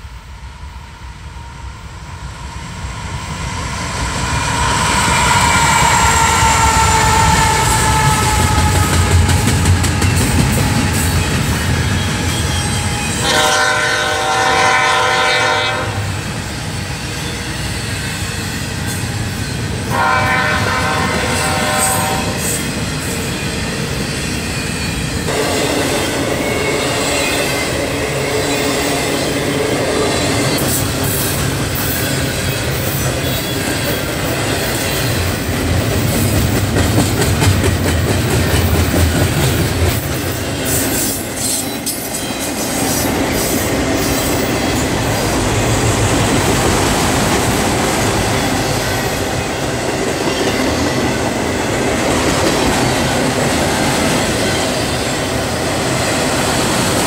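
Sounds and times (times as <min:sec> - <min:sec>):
train horn: 0:04.4 - 0:11.2, 0:11.8 - 0:16.4, 0:19.8 - 0:22.6.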